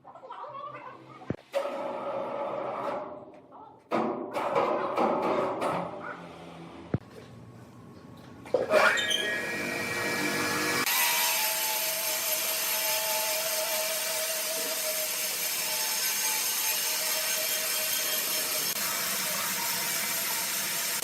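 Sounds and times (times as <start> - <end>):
sawmill saw cutting log: 8.7 - 21.0.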